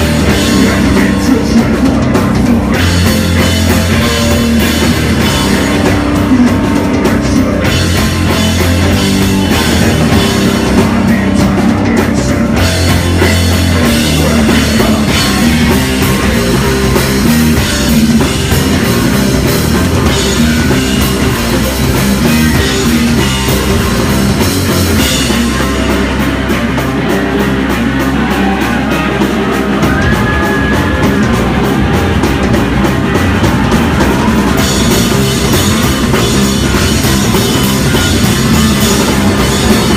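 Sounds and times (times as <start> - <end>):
fast drum hits: 0.0 - 39.9
heavy rock band playing: 0.0 - 39.9.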